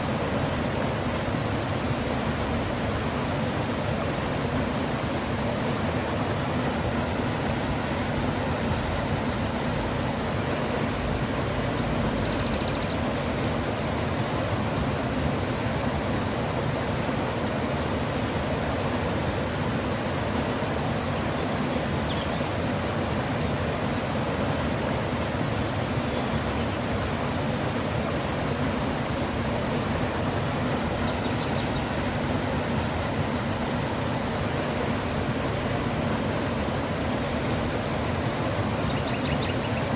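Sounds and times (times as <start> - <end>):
river rushing: 0.0 - 39.9
insect chirping: 0.2 - 13.4, 14.2 - 16.2, 17.0 - 22.0, 26.0 - 27.0, 29.5 - 39.9.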